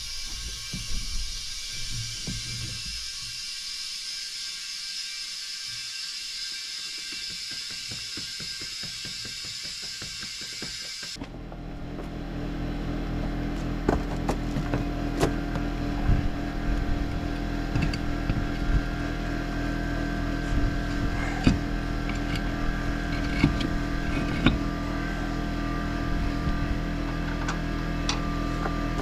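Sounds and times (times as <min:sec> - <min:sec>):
tractor diesel engine running: 0:11.2 - 0:29.0.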